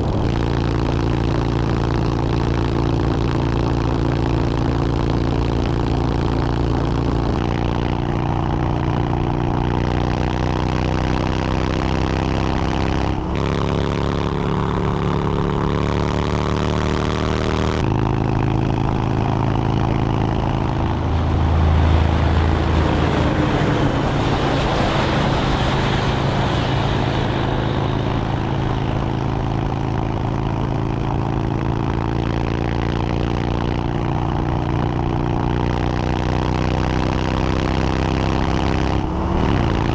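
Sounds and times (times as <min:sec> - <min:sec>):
motorcycle engine running: 0:00.0 - 0:39.9
wind rush: 0:19.0 - 0:30.8.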